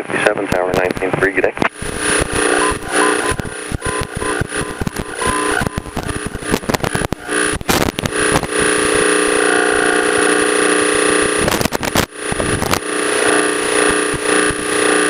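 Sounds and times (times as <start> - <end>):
intercom crackle: 0.2 - 15.0
airplane engine drone: 1.7 - 11.8.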